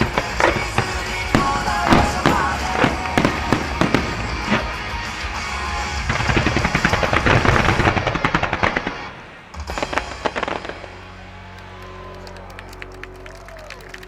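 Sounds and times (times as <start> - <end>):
fireworks bangs and crackles: 0.0 - 11.2.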